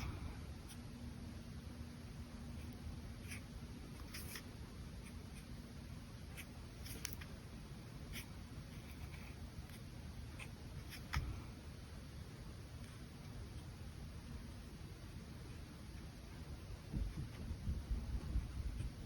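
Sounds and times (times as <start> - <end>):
brush pen scratching on paper: 2.5 - 5.6, 8.0 - 11.3.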